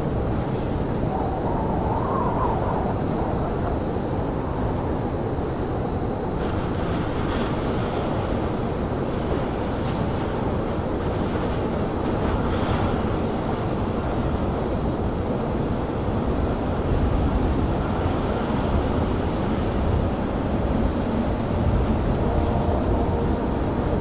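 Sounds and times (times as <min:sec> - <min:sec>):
faint high whine: 0:00.0 - 0:06.4
low railyard rumble: 0:00.0 - 0:24.0.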